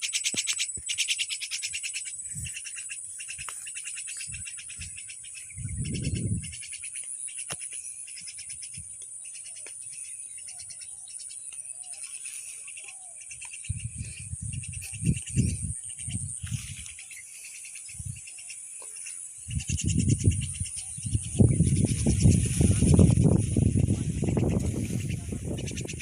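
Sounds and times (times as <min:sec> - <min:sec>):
insect chorus trilling: 0:00.0 - 0:26.0.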